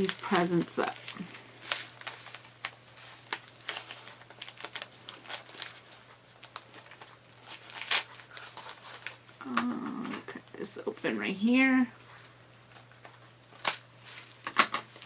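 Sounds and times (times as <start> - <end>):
wrapping paper crinkling: 0.0 - 15.0.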